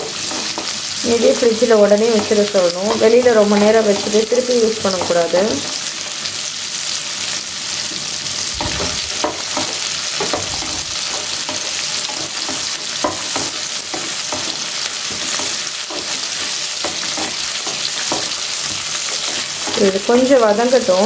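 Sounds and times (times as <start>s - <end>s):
spatula scraping a pan: 0.0s - 1.0s, 7.8s - 21.0s
food sizzling in oil: 0.0s - 21.0s.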